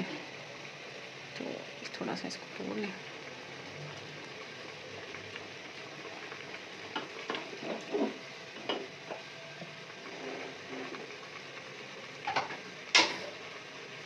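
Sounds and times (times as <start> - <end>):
minced meat sizzling: 0.0 - 14.0
spatula scraping a pot: 10.0 - 11.0.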